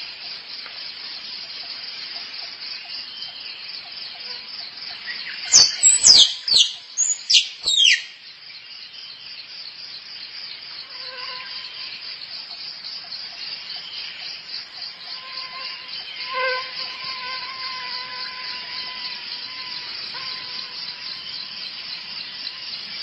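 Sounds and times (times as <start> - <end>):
pulsing insect chorus: 0.0 - 23.0
squirrel calling: 5.5 - 8.1.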